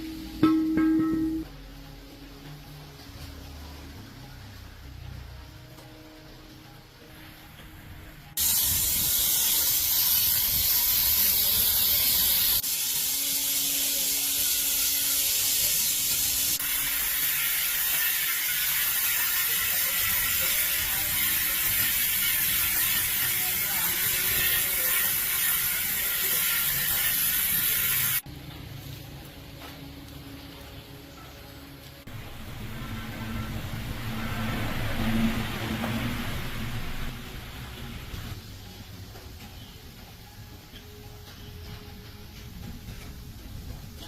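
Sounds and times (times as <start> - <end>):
high-pressure air jet hiss: 8.4 - 28.2.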